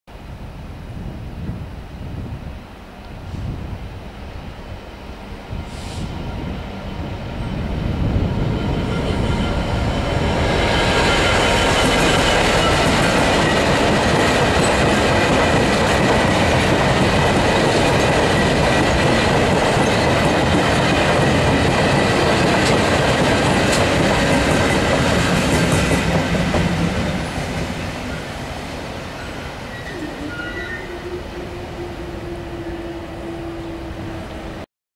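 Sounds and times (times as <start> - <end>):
diesel locomotives passing: 2.8 - 34.7
wheels clicking over rail joints: 12.0 - 26.7.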